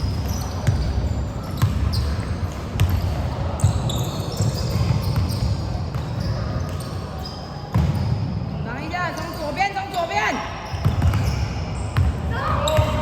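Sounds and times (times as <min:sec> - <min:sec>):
basketball bouncing on court floor: 0:00.0 - 0:06.9, 0:07.7 - 0:08.2, 0:10.7 - 0:13.0.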